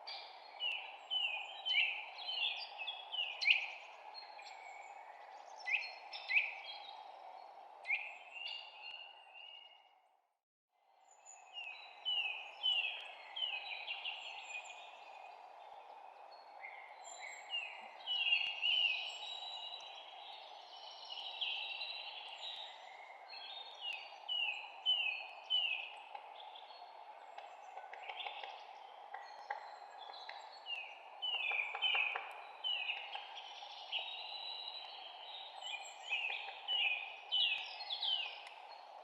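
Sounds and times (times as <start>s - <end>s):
songbirds chirping and singing: 11.0s - 39.0s.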